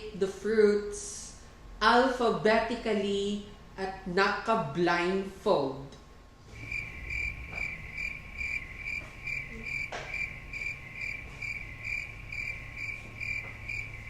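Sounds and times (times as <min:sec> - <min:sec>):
low hum: 0:06.5 - 0:14.0
cricket chirping: 0:06.6 - 0:14.0.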